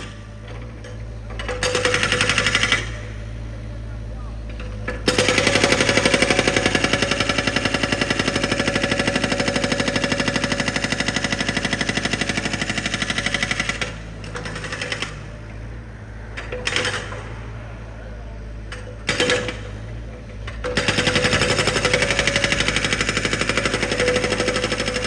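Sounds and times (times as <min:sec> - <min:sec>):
drill breaker hammering rapidly: 0:05.1 - 0:15.3, 0:20.6 - 0:25.0.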